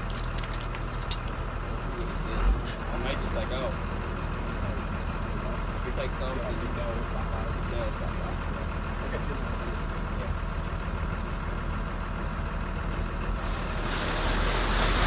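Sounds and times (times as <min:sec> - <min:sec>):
diesel engine idling: 0:00.0 - 0:15.0
loud hiss: 0:13.8 - 0:15.0.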